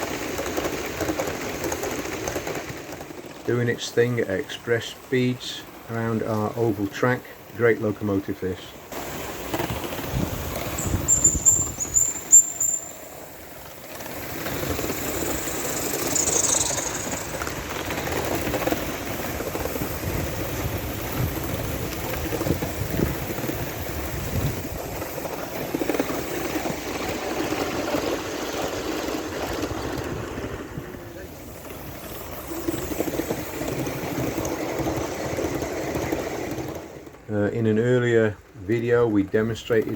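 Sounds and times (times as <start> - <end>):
model steam locomotive running: 0.0 - 39.9
steam hiss: 8.5 - 29.2, 30.0 - 36.8
high squeals: 10.7 - 13.2, 15.1 - 17.5.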